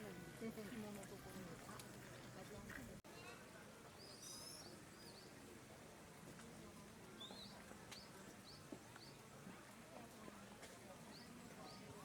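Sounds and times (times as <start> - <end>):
small bird chirping: 4.0 - 5.4.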